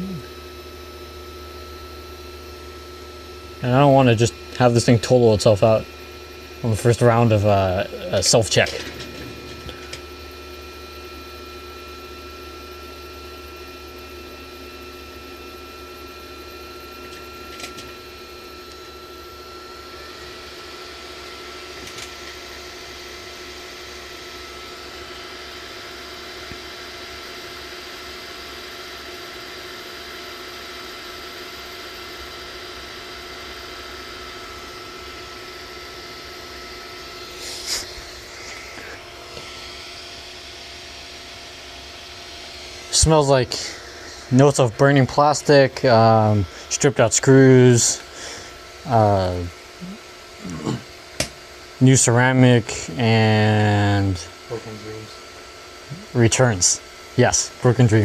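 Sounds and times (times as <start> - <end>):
printer motors whining and humming: 0.0 - 58.0
hiss: 37.3 - 38.6.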